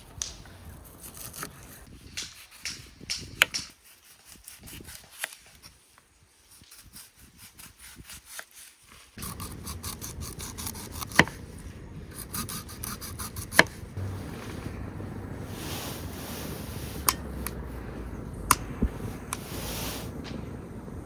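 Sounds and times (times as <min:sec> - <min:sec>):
rasping scraping strokes: 0:00.6 - 0:20.2
sharp clicks: 0:18.4 - 0:19.4.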